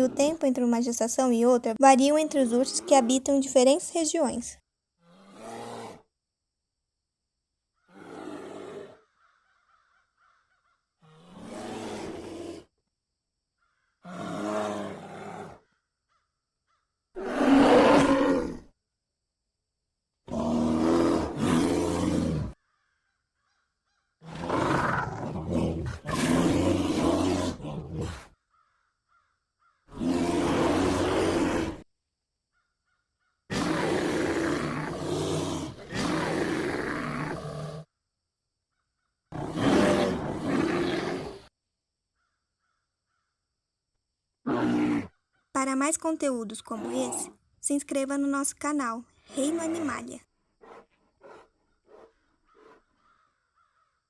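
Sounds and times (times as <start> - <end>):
bear roaring and growling: 0.0 - 0.5, 2.2 - 3.4, 5.0 - 6.1, 7.8 - 9.0, 11.0 - 12.7, 14.0 - 15.7, 17.2 - 18.7, 20.3 - 22.6, 24.2 - 28.3, 29.9 - 31.8, 33.5 - 37.9, 39.3 - 41.5, 44.4 - 45.2, 46.6 - 47.4, 49.3 - 52.9.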